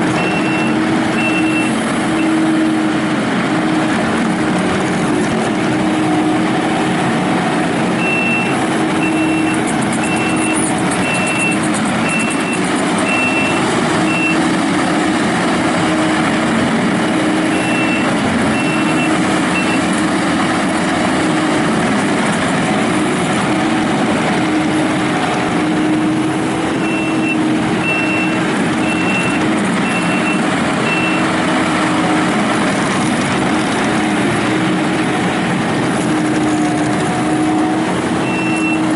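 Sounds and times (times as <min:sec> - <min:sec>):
skid steer diesel engine running: 0:00.0 - 0:38.9
back-up alarm beeping: 0:00.2 - 0:02.4, 0:08.0 - 0:14.5, 0:17.5 - 0:19.9, 0:26.8 - 0:31.3, 0:38.2 - 0:38.9.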